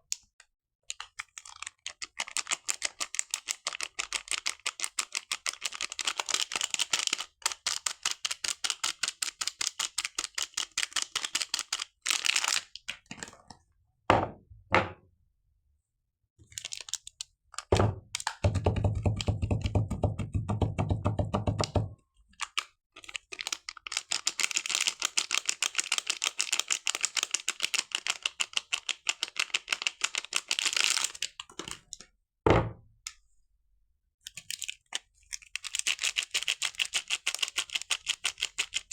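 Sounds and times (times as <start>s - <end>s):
packaging crackling as unwrapped: 0.9s - 13.1s, 16.5s - 17.7s, 22.4s - 31.8s.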